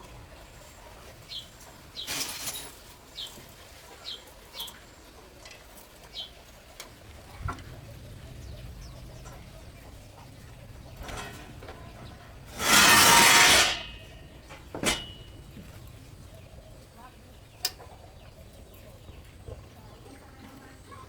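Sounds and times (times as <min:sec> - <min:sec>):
rustle: 0:00.0 - 0:17.9
low steady rumble: 0:07.0 - 0:21.0
bird chirping: 0:07.9 - 0:12.4.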